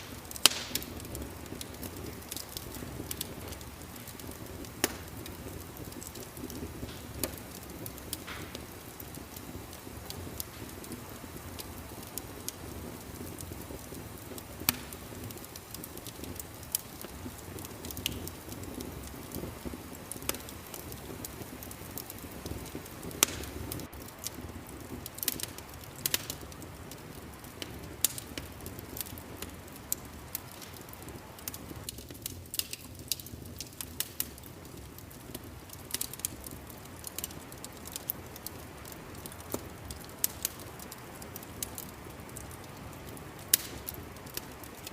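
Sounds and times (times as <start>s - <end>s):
low rumble of flames: 0.0s - 44.9s
wood fire crackling: 0.0s - 44.9s.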